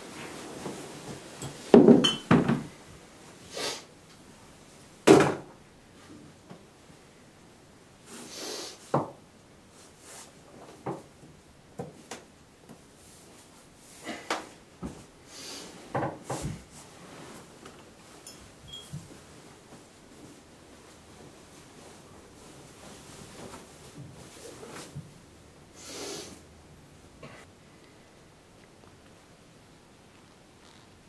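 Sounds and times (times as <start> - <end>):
rustling: 12.9 - 25.2.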